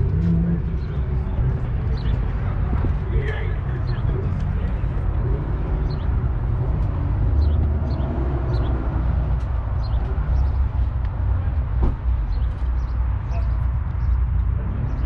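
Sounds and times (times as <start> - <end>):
small birds chirping: 3.8 - 11.1, 12.2 - 15.0.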